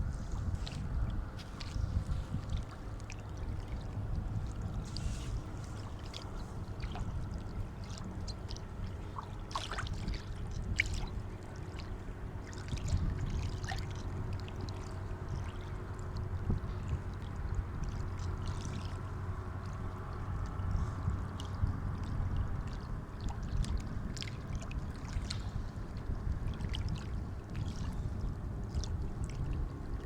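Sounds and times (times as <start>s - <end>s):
sea water lapping: 0.0s - 30.0s
small splashes: 0.2s - 15.7s.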